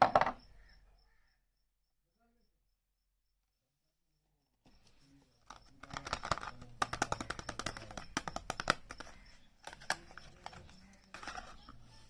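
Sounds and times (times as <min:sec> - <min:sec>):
packaging clicking and crinkling: 0:05.4 - 0:11.8.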